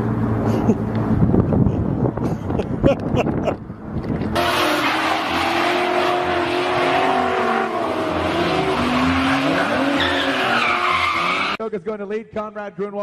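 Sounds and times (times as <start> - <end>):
tyres skidding: 3.6 - 11.6
race car engine at high revs: 4.1 - 11.6.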